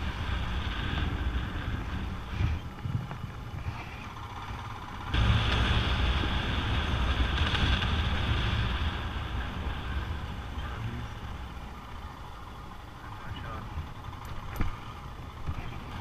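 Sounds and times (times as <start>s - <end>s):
wind noise on microphone: 0.0s - 3.9s, 5.1s - 11.0s
motorcycle engine running: 0.0s - 16.0s.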